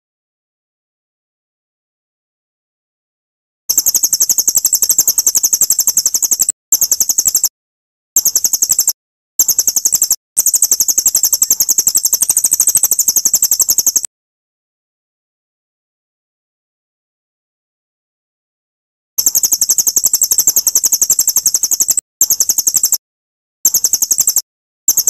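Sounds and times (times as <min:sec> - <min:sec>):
songbird rapid trill: 0:03.7 - 0:07.5, 0:08.2 - 0:14.1, 0:19.2 - 0:23.0, 0:23.7 - 0:25.0.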